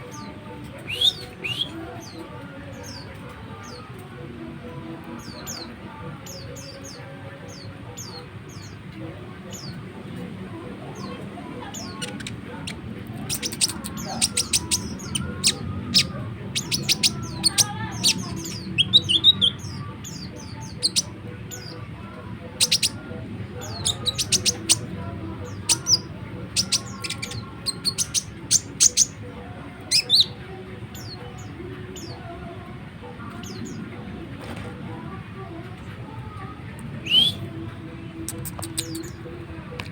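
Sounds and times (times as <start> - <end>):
songbird chattering with high chirps: 11.7 - 21.7, 22.6 - 23.0, 23.6 - 29.2.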